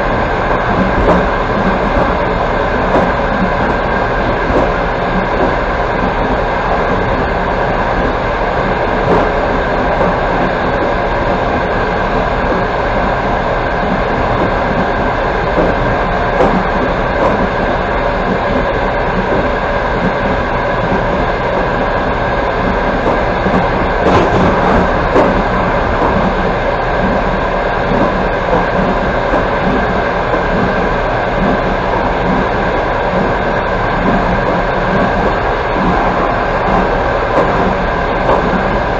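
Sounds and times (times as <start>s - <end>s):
train wheels rumbling on rails: 0.0s - 38.9s
faint track knocks: 0.6s - 7.3s, 13.9s - 21.8s, 22.6s - 27.2s.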